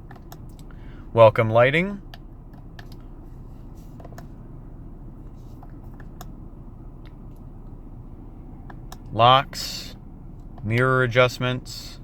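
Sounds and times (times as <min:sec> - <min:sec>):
steering wheel buttons clicking: 0:00.0 - 0:00.6, 0:02.1 - 0:03.1, 0:04.0 - 0:04.3, 0:05.6 - 0:06.4, 0:08.6 - 0:09.1, 0:10.4 - 0:10.9
car engine idling hum: 0:00.0 - 0:12.0.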